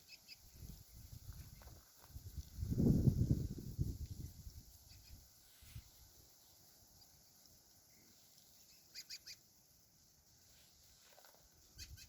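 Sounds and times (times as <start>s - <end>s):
bird short high chirps: 8.7s - 9.4s, 11.7s - 12.0s.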